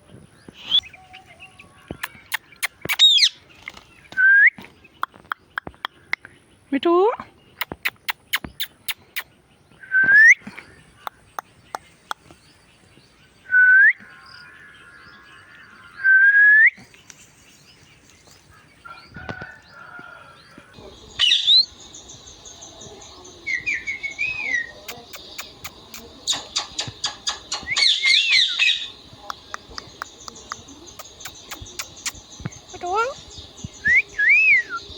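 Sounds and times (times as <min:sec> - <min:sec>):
parrot calling: 0:23.4 - 0:29.0
sharp clicks: 0:24.8 - 0:28.2, 0:29.2 - 0:32.6.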